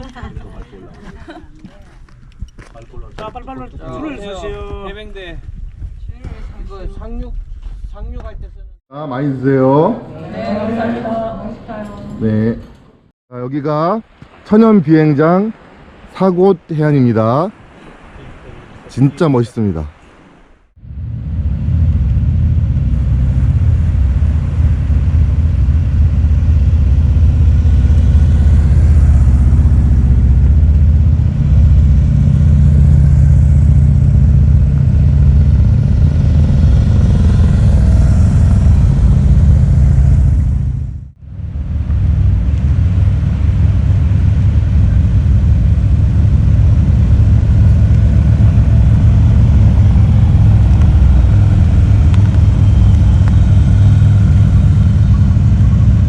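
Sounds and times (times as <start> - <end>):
motorcycle engine running: 20.8 - 56.0.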